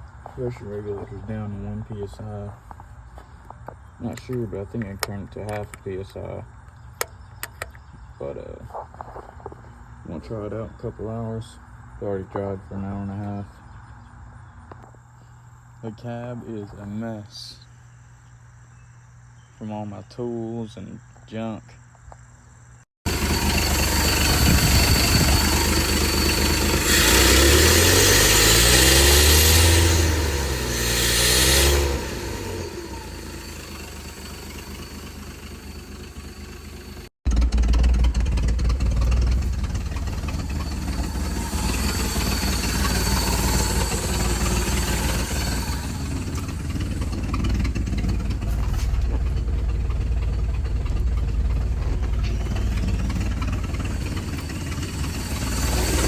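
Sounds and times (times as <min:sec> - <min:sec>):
engine revving and running: 0:23.0 - 0:56.0.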